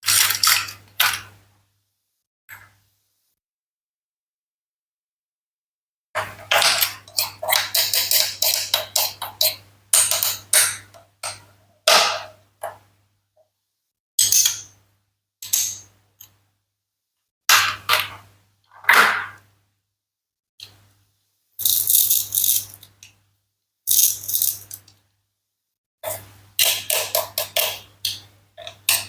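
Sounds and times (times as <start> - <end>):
toy knife cutting toy food: 6.6 - 10.7, 26.1 - 27.9.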